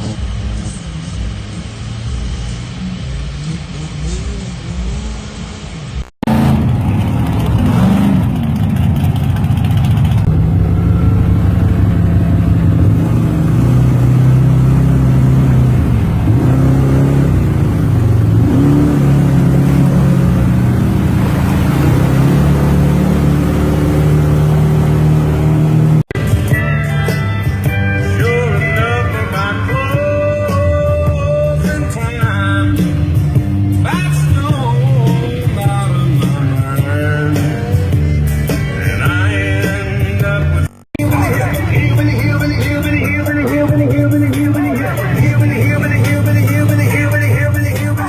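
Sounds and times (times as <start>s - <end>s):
off-road vehicle engine revving: 6.2s - 26.2s, 41.0s - 48.0s.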